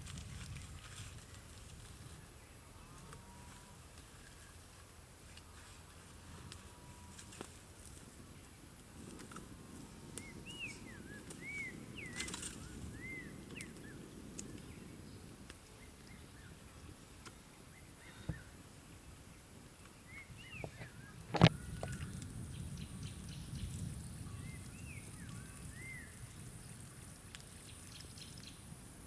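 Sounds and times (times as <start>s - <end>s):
outdoor rustle: 0.0s - 29.0s
bird chirping: 10.2s - 15.2s.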